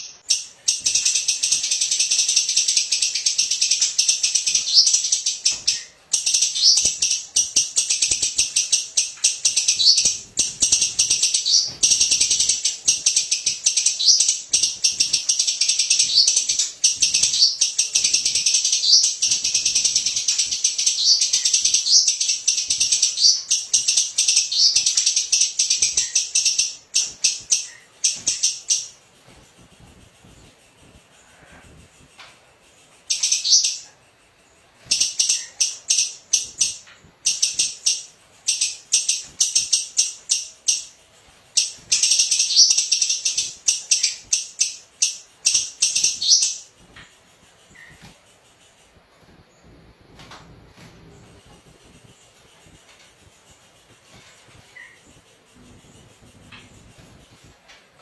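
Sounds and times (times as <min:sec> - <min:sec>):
songbird singing rapid trills: 0:00.0 - 0:29.0, 0:33.1 - 0:46.8.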